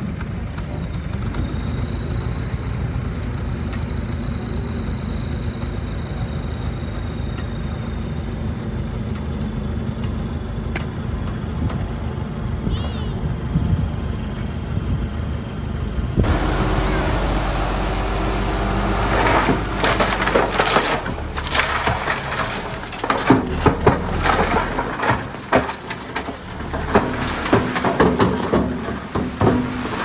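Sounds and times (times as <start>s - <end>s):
bulldozer diesel engine running: 0.0s - 30.0s
debris crunching: 16.2s - 30.0s
wood cracking and snapping: 17.3s - 30.0s.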